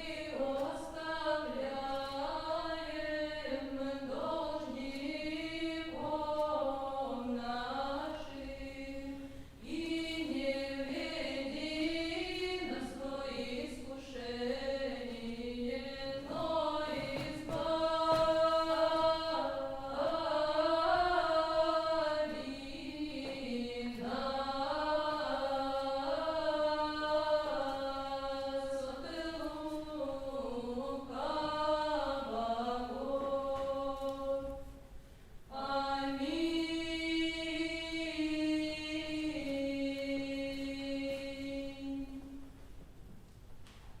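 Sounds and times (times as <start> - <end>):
unaccompanied voices chanting: 0.0 - 34.6.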